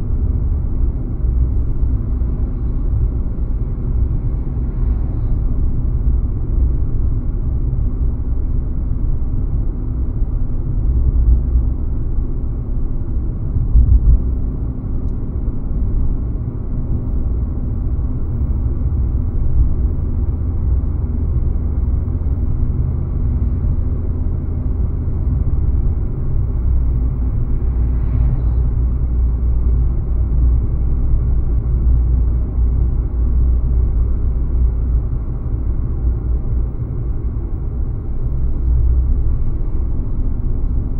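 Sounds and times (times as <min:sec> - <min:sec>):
car driving on road: 0:00.0 - 0:40.9.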